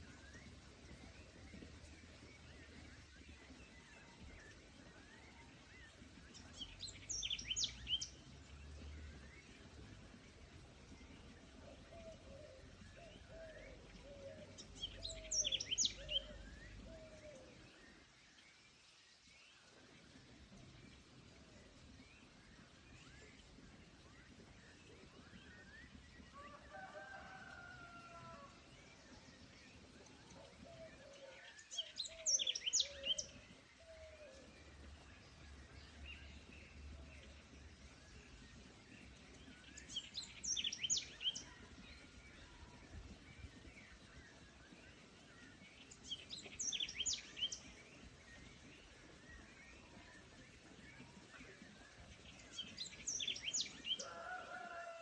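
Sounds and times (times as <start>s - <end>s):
faint forest background: 0.0s - 55.0s
songbird singing high phrase: 6.6s - 8.5s, 31.7s - 33.9s, 39.5s - 51.0s.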